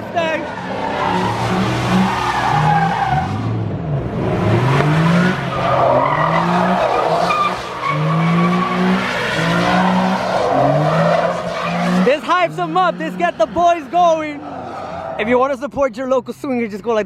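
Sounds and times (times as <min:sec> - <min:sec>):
tyres squealing: 0:00.0 - 0:03.4, 0:05.3 - 0:15.3
car engine revving: 0:00.0 - 0:15.4.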